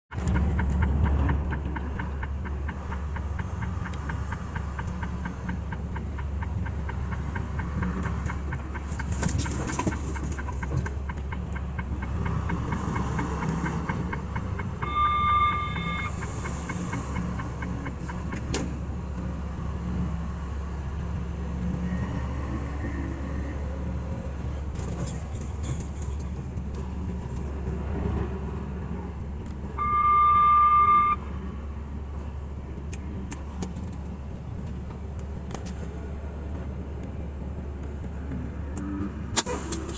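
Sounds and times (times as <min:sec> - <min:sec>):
truck cab road and engine noise: 0:00.0 - 0:39.9
short beep: 0:14.8 - 0:16.2, 0:29.8 - 0:31.3.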